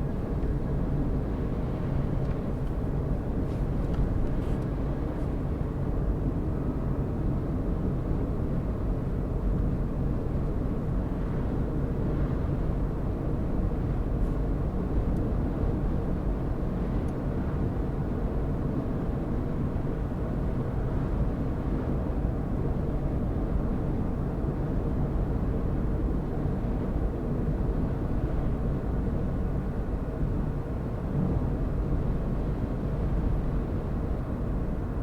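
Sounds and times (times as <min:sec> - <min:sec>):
car engine and tyre noise: 0:00.0 - 0:05.8.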